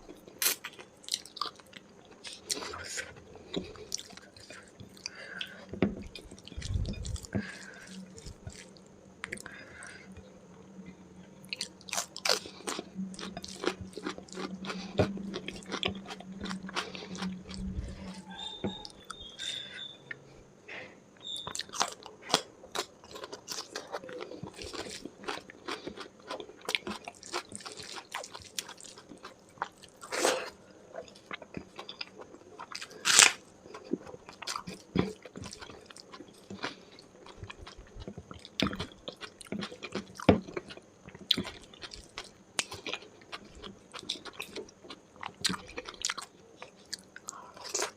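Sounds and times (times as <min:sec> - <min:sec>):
crunchy bites: 0:32.8 - 0:36.8.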